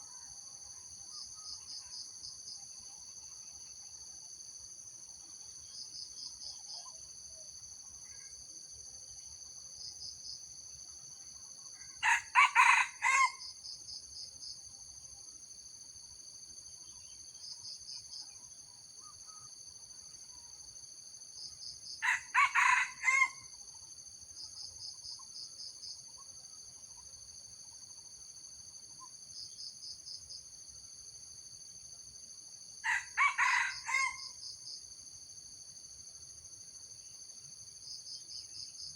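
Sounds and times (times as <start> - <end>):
insects droning: 0.0 - 38.9
rooster crowing: 12.0 - 13.4, 22.0 - 23.5, 32.8 - 34.4.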